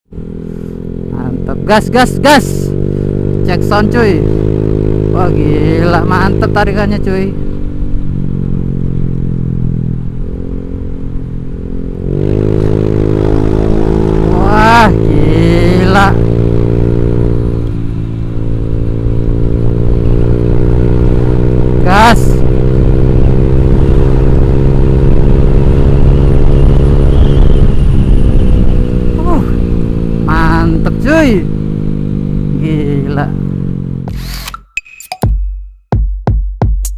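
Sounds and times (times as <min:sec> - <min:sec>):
scooter engine revving: 0:12.0 - 0:34.5
scooter engine running loud: 0:12.2 - 0:16.4, 0:26.5 - 0:33.4.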